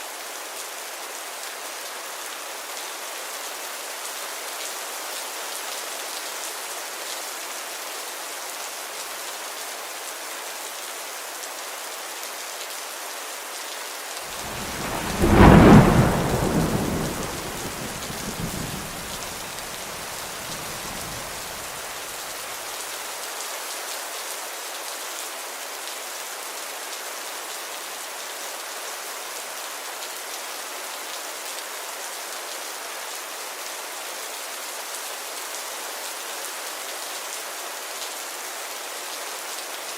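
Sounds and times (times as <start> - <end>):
steady rain: 0.0 - 39.9
thunder rumbling: 14.3 - 22.0.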